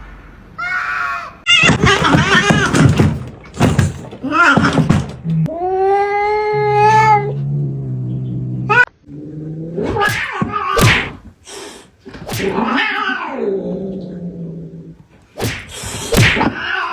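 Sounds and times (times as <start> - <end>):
cats growling yowls: 5.5 - 11.1, 12.4 - 15.0, 16.3 - 16.9
cat spits or hisses: 15.4 - 16.4.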